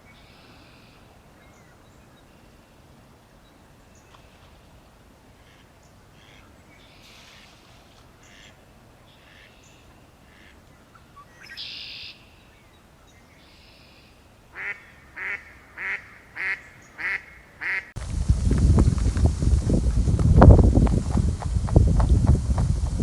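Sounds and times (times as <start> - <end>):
bird calling: 5.4 - 17.9.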